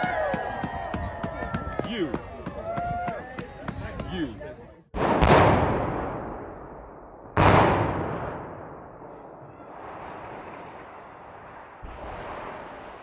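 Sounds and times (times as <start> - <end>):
demolition explosion blast: 5.0 - 13.0.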